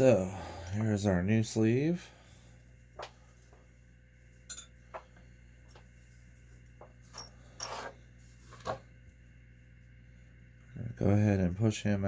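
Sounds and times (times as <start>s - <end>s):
small metal parts clinking: 7.1s - 7.9s.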